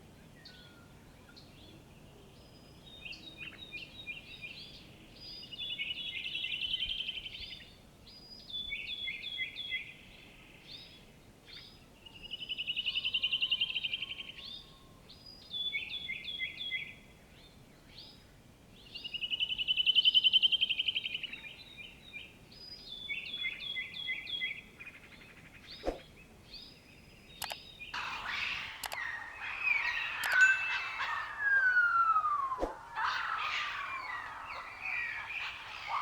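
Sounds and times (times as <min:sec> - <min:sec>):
songbird singing trills: 0:18.8 - 0:36.0
jumble of chirps and clicks: 0:27.4 - 0:36.0.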